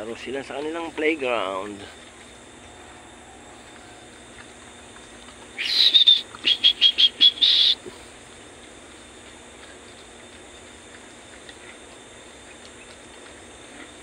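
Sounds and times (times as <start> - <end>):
bird calling high-pitched: 5.6 - 7.8.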